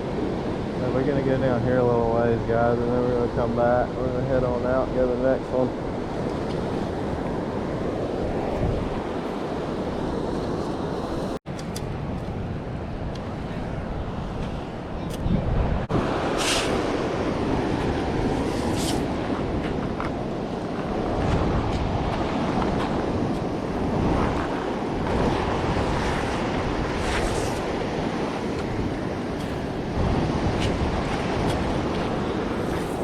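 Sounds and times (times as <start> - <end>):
ocean surf washing on beach: 0.0 - 33.0
wind buffeting microphone: 0.0 - 33.0.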